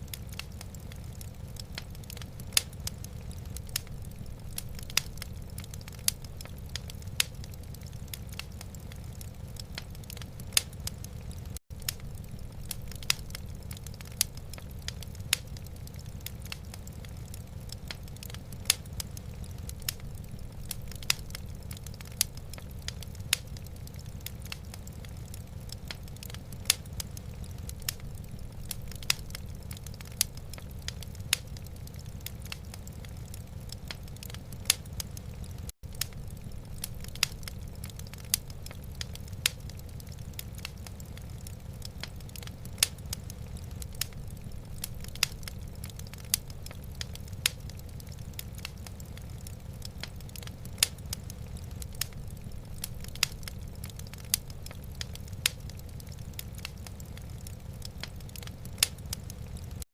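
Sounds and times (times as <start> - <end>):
low fire rumble: 0.0 - 59.9
wood fire crackling: 0.0 - 59.9.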